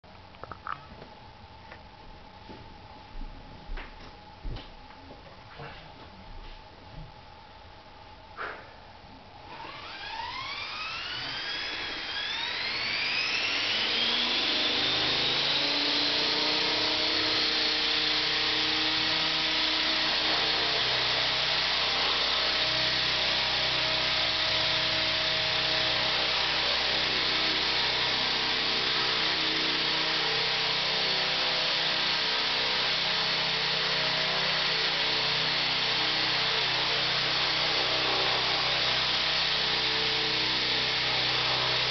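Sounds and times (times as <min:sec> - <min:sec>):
rc helicopter whine: 0:09.4 - 0:41.9.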